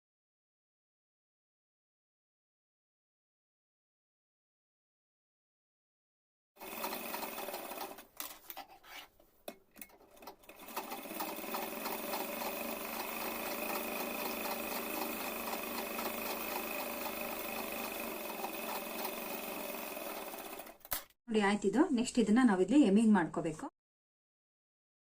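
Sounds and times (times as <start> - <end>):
sewing machine stitching: 6.6 - 8.6, 9.8 - 21.2.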